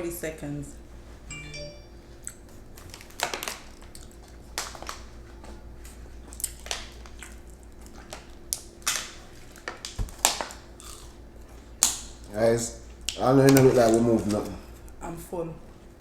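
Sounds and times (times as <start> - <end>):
crunching and chewing food: 2.2 - 15.0.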